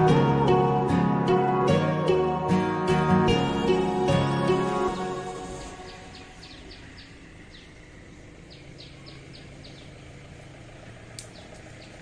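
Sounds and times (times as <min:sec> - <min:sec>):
road traffic hum: 0:00.0 - 0:12.0
small bird chirping: 0:04.9 - 0:12.0.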